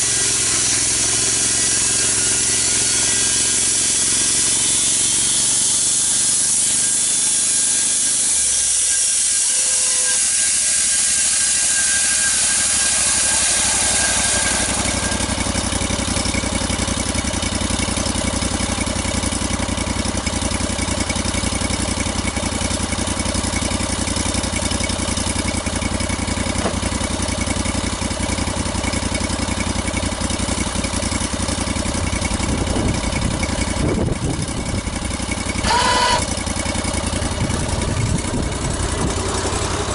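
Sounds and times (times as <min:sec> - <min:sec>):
engine running: 0:00.0 - 0:39.9
high hiss: 0:07.8 - 0:16.6.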